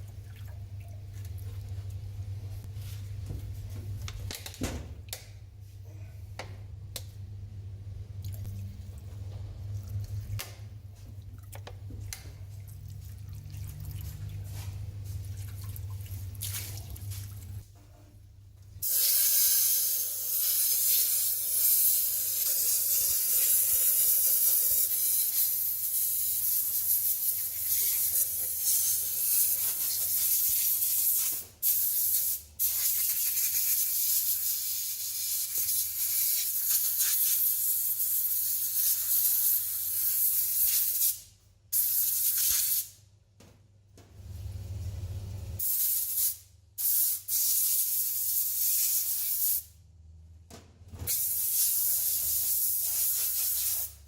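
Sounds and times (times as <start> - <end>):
pressurised spray hissing: 51.2 - 54.0.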